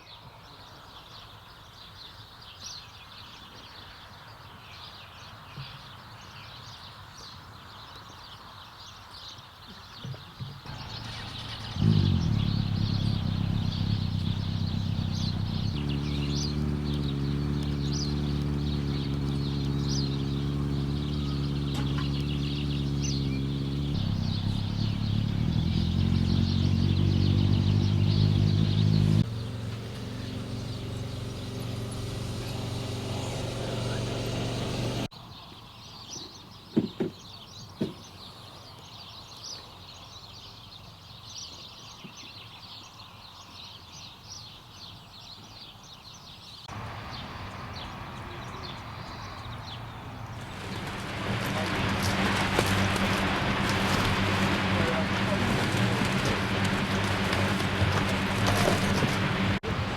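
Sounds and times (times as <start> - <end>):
birds chirping: 8.8 - 59.9
motorcycle engine idling: 10.7 - 35.1, 46.7 - 59.9.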